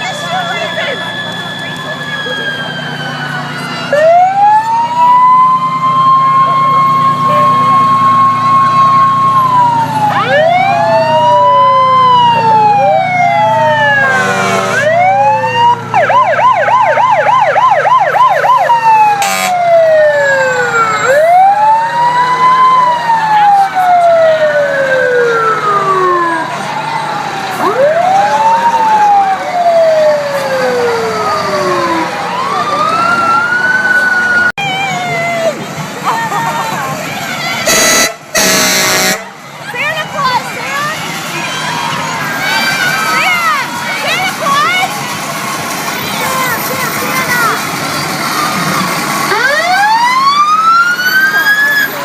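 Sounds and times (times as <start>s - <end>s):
siren yelp: 0.0s - 35.7s, 37.4s - 45.0s, 48.6s - 52.0s
sirens wailing: 0.0s - 52.0s
vehicle engine humming: 0.0s - 52.0s
vehicle horn blast: 14.0s - 14.9s, 19.2s - 19.5s, 37.6s - 39.3s.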